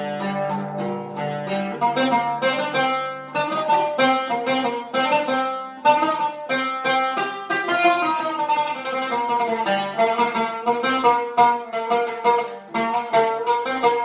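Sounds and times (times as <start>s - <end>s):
oud plucked melody: 0.0s - 14.0s.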